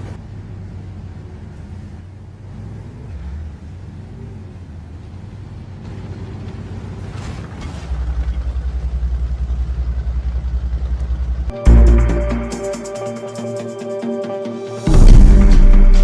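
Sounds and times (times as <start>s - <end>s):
vehicle rumble throbbing: 0.0s - 12.9s, 14.9s - 16.0s
loud music: 11.5s - 16.0s.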